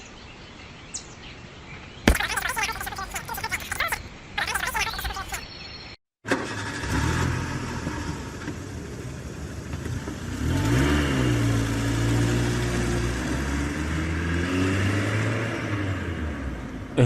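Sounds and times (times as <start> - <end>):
engine humming and revving: 6.3 - 17.0.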